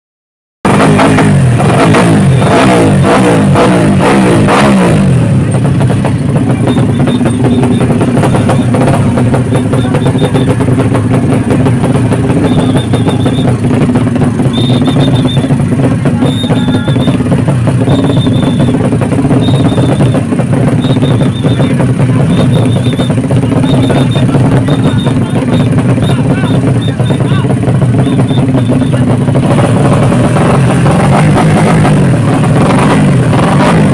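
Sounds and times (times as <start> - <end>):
motorcycle engine revving: 0.7 - 33.9.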